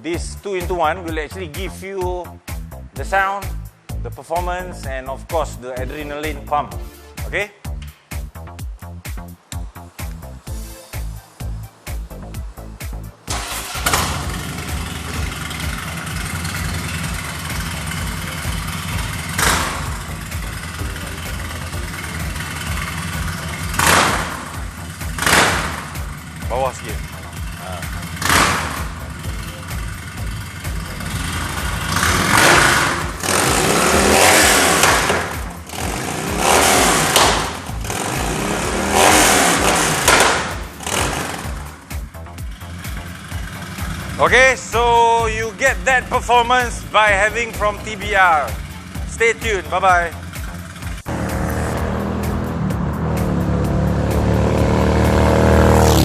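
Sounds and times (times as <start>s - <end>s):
engine burst: 13.3s - 26.4s, 28.1s - 29.2s, 30.8s - 41.8s
motorcycle engine idling: 13.4s - 34.2s, 35.2s - 53.8s.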